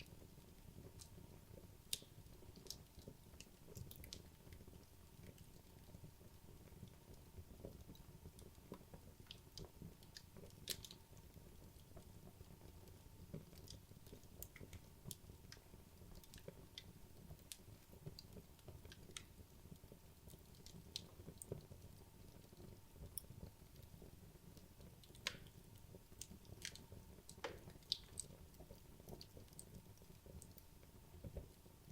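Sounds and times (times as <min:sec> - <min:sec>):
burning logs popping and snapping: 0:07.6 - 0:11.0, 0:24.6 - 0:30.6.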